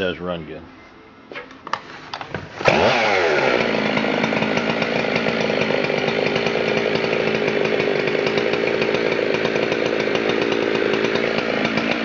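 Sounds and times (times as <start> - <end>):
chainsaw engine starting and running: 2.5 - 12.0.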